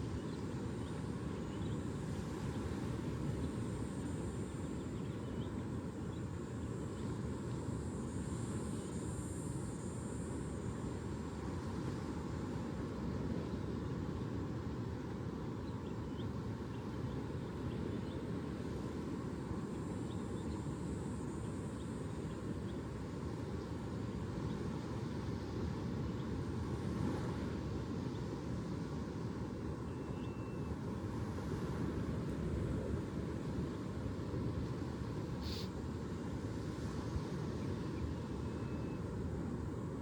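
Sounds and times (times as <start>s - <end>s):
faint short chirps: 35.4s - 35.8s.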